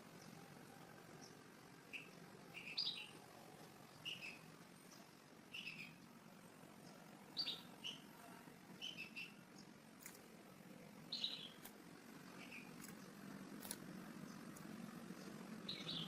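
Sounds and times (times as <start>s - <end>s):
small bird chirping: 0.0s - 6.1s, 6.7s - 10.3s, 11.0s - 16.0s.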